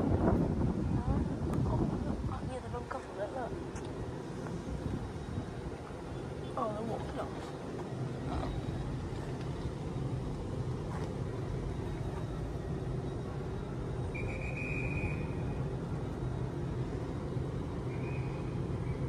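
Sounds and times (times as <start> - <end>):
train equipment low hum: 0.0 - 19.0
high steady tone: 2.8 - 18.8.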